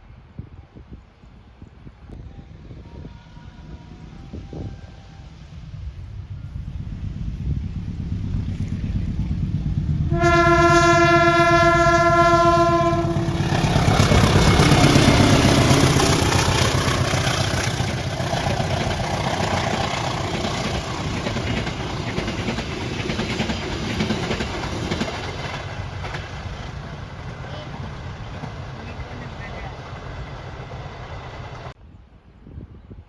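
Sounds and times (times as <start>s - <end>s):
train rolling past on rails: 0.2s - 31.8s
low rumble: 2.1s - 31.8s
train horn blast: 10.0s - 17.8s.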